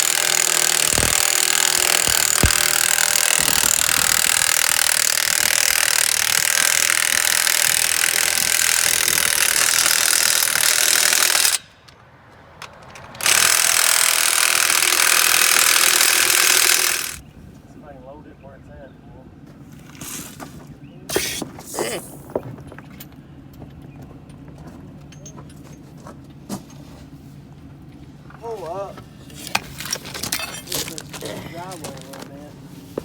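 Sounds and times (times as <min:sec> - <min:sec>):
impact wrench running: 0:00.0 - 0:11.7, 0:13.2 - 0:17.2.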